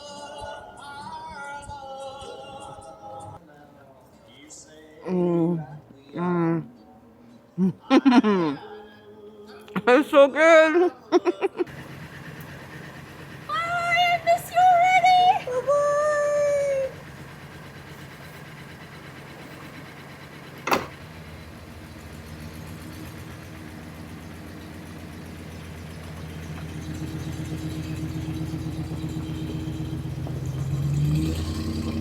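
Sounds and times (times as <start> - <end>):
engine idling: 11.7 - 32.0
sharp knock: 20.7 - 21.0.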